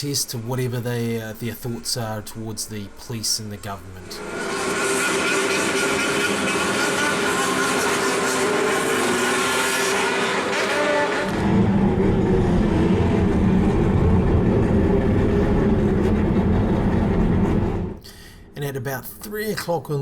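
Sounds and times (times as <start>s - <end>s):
deep heavy engine drone: 3.8s - 18.6s
motorcycle engines revving: 4.2s - 16.5s.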